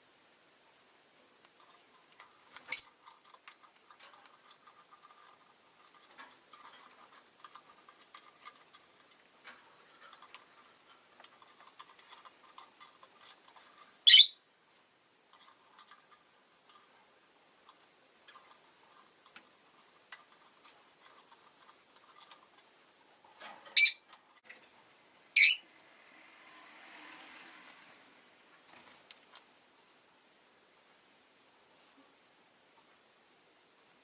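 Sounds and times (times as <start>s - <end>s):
bird ticking and chatter: 2.4s - 5.4s, 6.1s - 14.4s, 25.4s - 25.6s
shrill bird calls: 2.7s - 3.0s, 14.1s - 14.4s, 23.8s - 24.0s, 25.4s - 25.6s.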